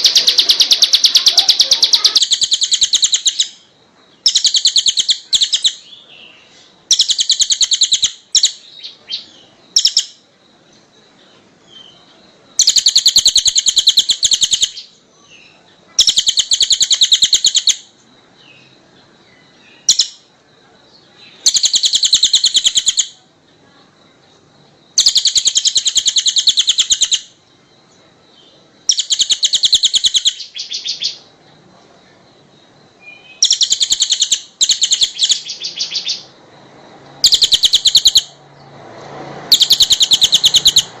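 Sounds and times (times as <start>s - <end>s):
songbird trilling: 0.0s - 10.2s, 11.6s - 20.3s, 20.9s - 23.2s, 24.9s - 27.4s, 28.3s - 31.3s, 33.0s - 36.4s, 37.2s - 38.4s, 39.5s - 41.0s.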